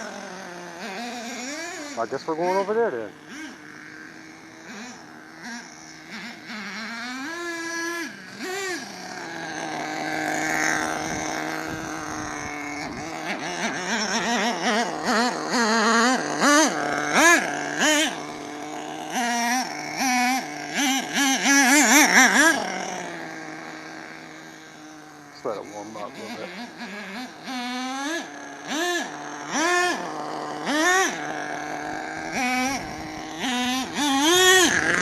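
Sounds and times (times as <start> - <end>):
small nitro engine revving: 0.0 - 35.0.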